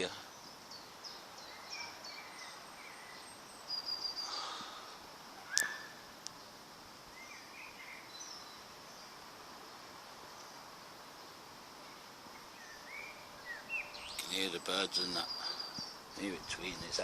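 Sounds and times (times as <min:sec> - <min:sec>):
birds chirping and singing: 0:00.0 - 0:04.8, 0:11.9 - 0:17.0
faint outdoor background noise: 0:00.0 - 0:17.0.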